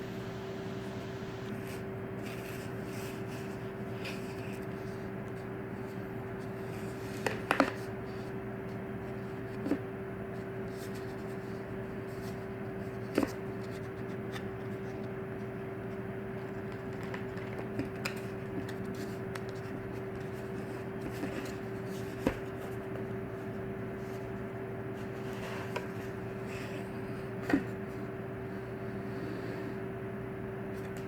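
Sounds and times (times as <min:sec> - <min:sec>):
low electrical hum: 0:00.0 - 0:31.0
hands handling box packaging: 0:16.4 - 0:23.1.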